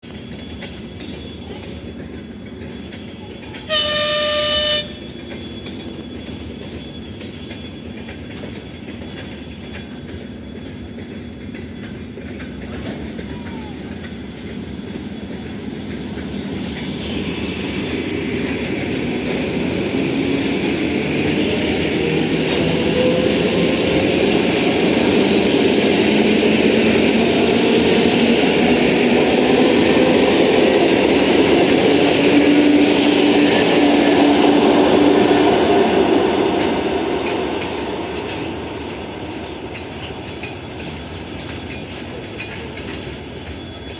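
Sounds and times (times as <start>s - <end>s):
train motors and wheels: 0.0s - 43.9s
train horn blast: 3.7s - 5.2s.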